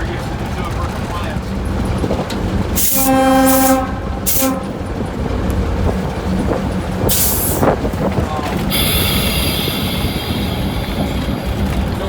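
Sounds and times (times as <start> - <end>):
diesel engine rumble: 0.0 - 12.0
diesel locomotive horn blasts: 2.8 - 5.1, 8.7 - 12.0.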